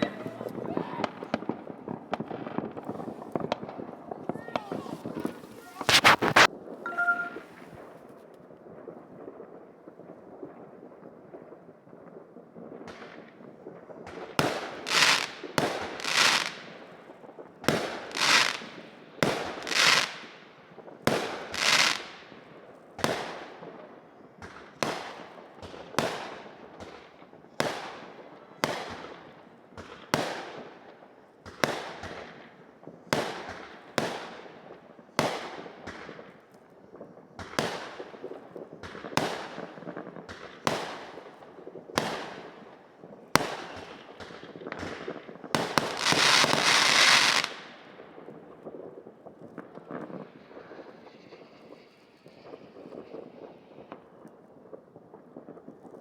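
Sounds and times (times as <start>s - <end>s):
firework bangs with echo: 0.0s - 8.1s, 12.5s - 23.8s, 37.4s - 54.2s.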